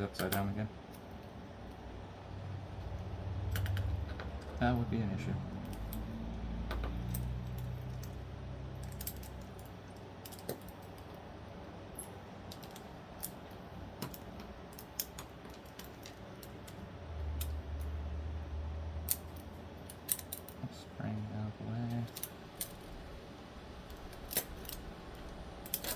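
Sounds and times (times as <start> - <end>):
small metal parts clicking: 3.5 - 4.6, 5.6 - 11.2, 11.9 - 18.0, 19.0 - 20.6, 21.9 - 23.0, 23.9 - 25.9.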